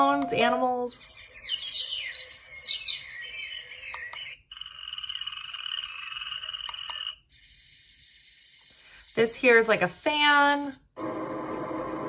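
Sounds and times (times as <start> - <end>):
recorded birdsong: 0.0 - 10.9
frog chorus croaking: 4.5 - 10.8
high insect trill: 7.3 - 10.8.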